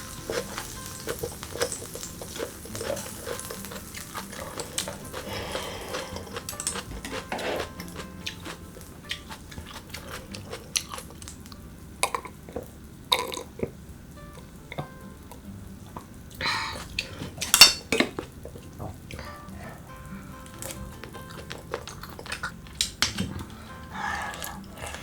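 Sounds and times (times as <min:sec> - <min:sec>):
chewing with wet mouth noises: 0:00.0 - 0:13.8, 0:15.9 - 0:25.0.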